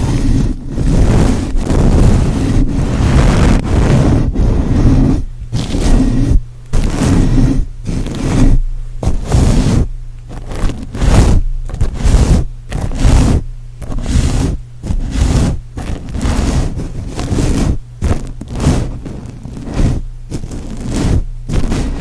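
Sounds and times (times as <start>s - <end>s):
rhythmic scraping strokes: 0.0s - 22.0s.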